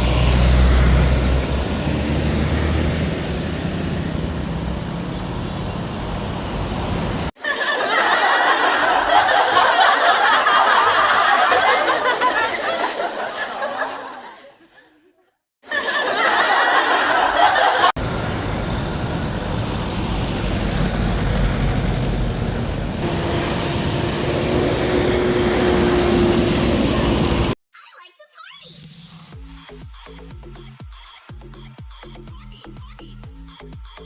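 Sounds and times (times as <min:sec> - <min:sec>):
engine rumble: 0:00.0 - 0:07.4, 0:17.9 - 0:27.6
trucks passing: 0:00.0 - 0:13.8, 0:16.1 - 0:27.6.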